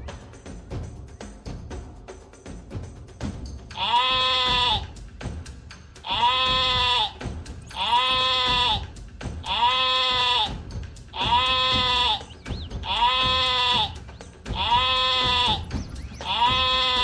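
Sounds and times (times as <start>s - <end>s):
percussion: 0.0s - 17.0s
bleats: 3.8s - 4.9s, 6.0s - 17.0s.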